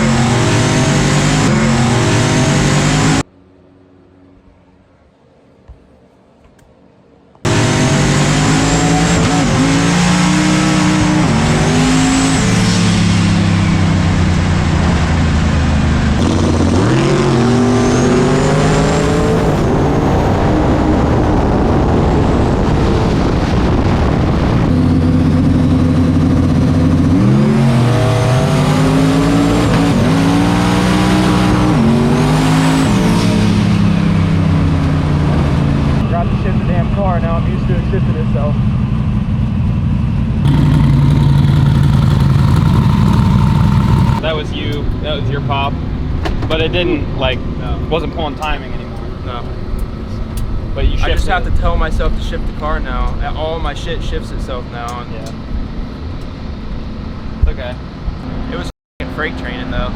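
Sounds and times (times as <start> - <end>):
racing car engine at high revs: 0.0 - 3.2, 7.5 - 20.6, 26.9 - 34.1, 40.4 - 44.3.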